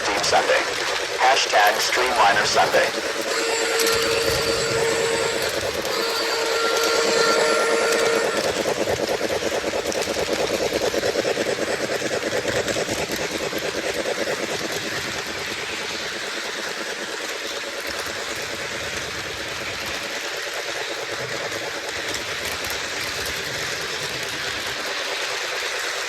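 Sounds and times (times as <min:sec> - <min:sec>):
steam chuffing: 0:00.0 - 0:26.0
wheels rumbling on track: 0:00.0 - 0:26.0
model train whistle: 0:02.9 - 0:09.1.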